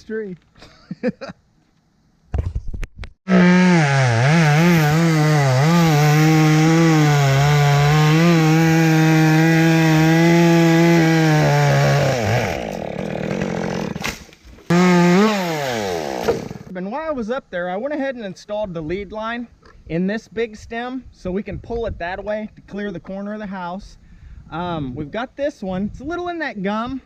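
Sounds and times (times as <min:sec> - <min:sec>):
chainsaw cutting wood: 0:03.3 - 0:16.7.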